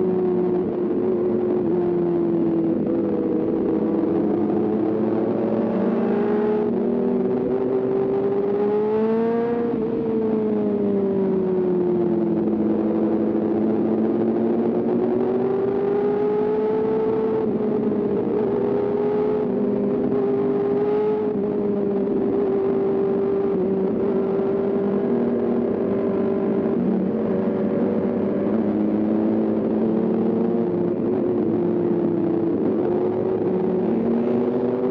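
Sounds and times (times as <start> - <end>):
motorcycle engine at high revs: 0.0 - 34.9.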